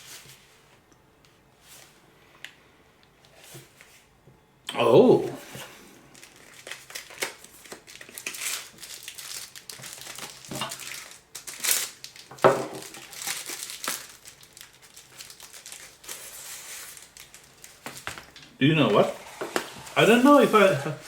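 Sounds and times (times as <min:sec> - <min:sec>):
packaging crinkling and rustling: 0:05.6 - 0:21.0.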